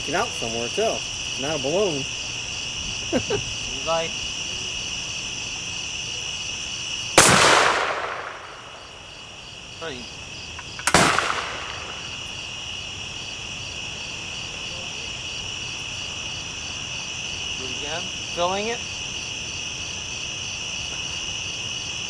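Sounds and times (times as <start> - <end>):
crickets chirring: 0.0 - 22.0
explosive bangs: 7.2 - 9.1, 10.7 - 12.4.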